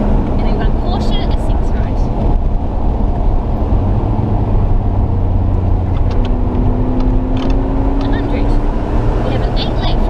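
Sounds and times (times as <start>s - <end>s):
car engine accelerating: 0.0s - 10.0s
road noise inside car: 0.0s - 10.0s.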